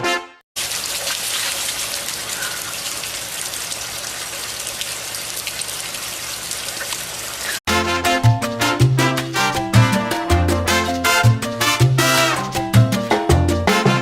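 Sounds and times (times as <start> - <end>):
steady rain falling: 0.6 - 7.6.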